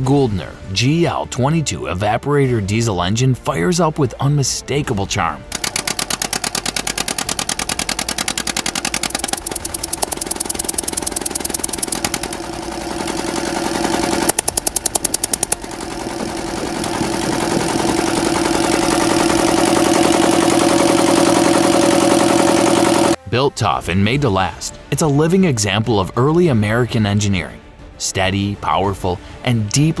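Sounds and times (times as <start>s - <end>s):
stationary diesel engine running: 5.5s - 23.2s.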